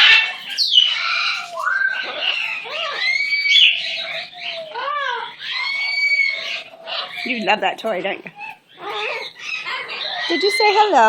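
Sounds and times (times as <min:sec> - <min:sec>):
bird chirping and whistling: 0:00.0 - 0:07.6.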